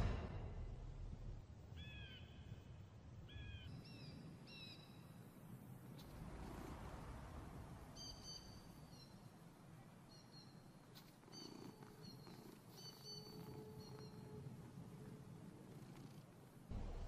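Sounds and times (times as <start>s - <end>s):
faint outdoor background: 0.0s - 17.0s
bird whistled calls: 8.0s - 9.1s, 11.3s - 14.4s.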